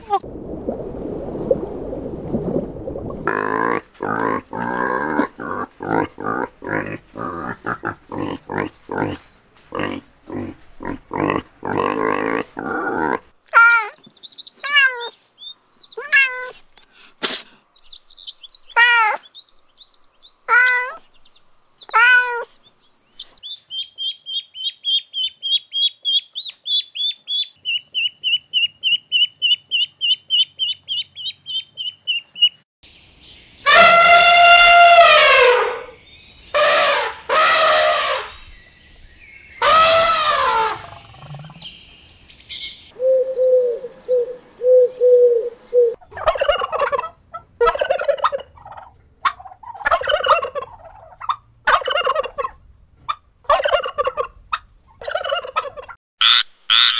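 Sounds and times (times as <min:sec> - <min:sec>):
pig grunting: 0:03.3 - 0:13.3
cat meowing: 0:16.0 - 0:16.6, 0:21.9 - 0:22.5
goslings peeping: 0:23.2 - 0:32.6, 0:43.6 - 0:56.9.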